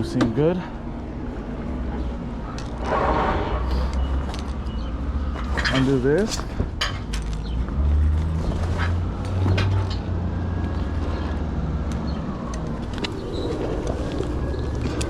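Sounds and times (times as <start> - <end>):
bungee cords clicking and rustling: 3.7 - 15.0.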